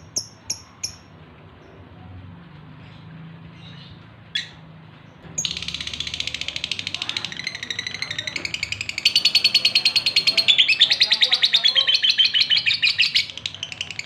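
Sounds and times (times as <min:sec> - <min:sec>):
lovebird chattering song: 0:00.0 - 0:01.1, 0:05.4 - 0:14.0
lovebird chirp: 0:00.0 - 0:01.8, 0:05.3 - 0:14.0.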